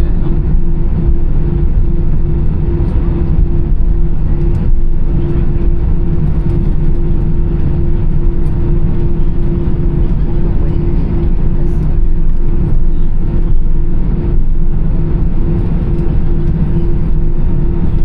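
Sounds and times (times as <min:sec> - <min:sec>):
jet engine rumble inside cabin: 0:00.0 - 0:18.0
wavering hum: 0:00.0 - 0:18.0.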